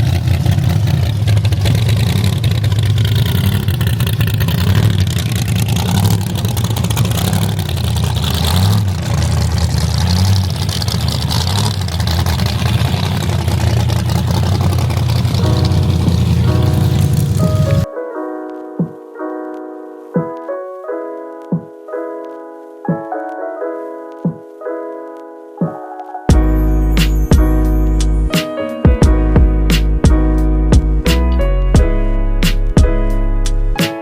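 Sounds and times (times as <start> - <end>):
car engine revving: 0.0 - 17.9.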